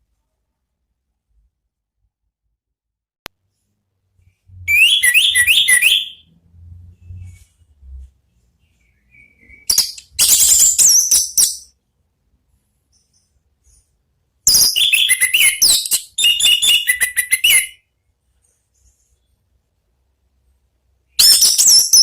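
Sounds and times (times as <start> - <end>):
thrush singing whistled notes: 4.6 - 6.3, 14.5 - 17.8.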